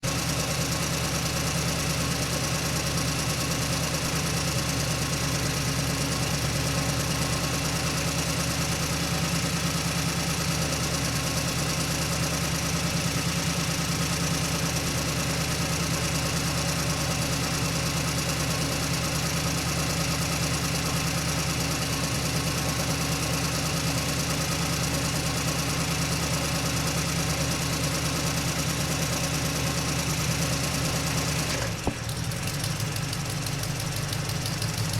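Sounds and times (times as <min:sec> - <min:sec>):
truck engine droning: 0:14.7 - 0:34.9.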